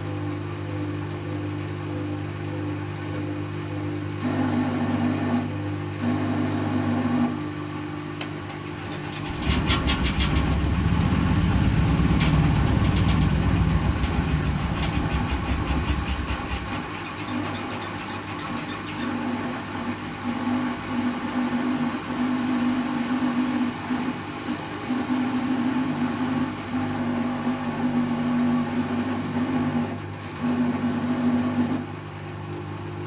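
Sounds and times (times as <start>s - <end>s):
washing machine spinning: 0.0s - 33.0s
drum rumbling with rattling clicks: 8.2s - 19.7s
higher motor tone: 8.8s - 17.0s.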